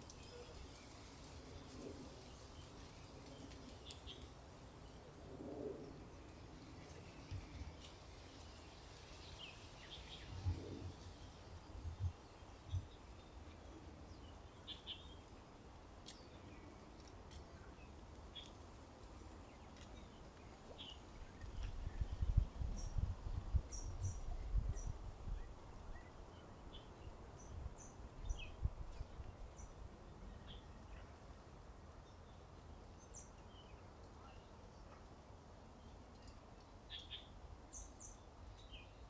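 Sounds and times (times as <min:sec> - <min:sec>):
small birds chirping: 0:05.6 - 0:15.4, 0:35.8 - 0:39.0.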